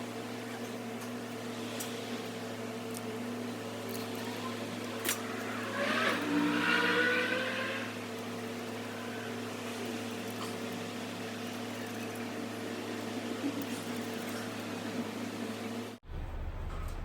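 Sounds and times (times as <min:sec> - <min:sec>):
steady mechanical hum: 0:00.0 - 0:17.0
vehicle engine speeding up: 0:04.4 - 0:08.1.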